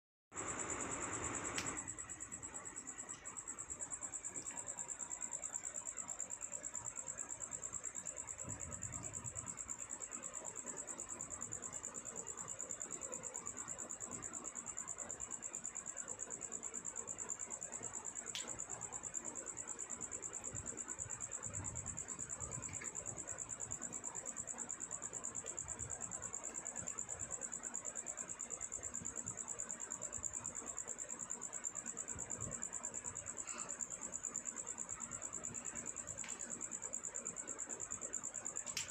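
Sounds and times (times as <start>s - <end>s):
high-pitched insect trill: 0.4s - 38.9s
sharp click: 1.6s - 1.8s.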